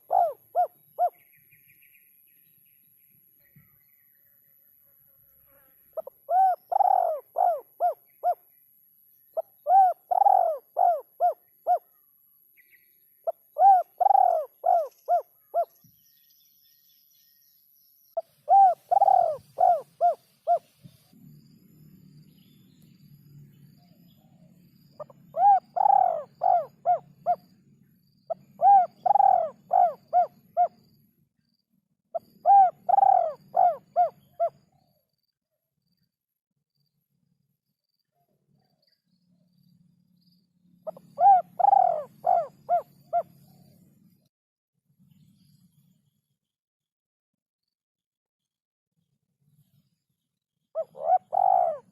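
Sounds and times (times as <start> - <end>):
dove cooing: 0.0 - 1.2, 6.0 - 8.4, 9.4 - 11.9, 13.3 - 15.7, 18.2 - 20.7, 25.0 - 27.4, 28.3 - 30.8, 32.2 - 34.6, 40.9 - 43.6, 50.8 - 51.9.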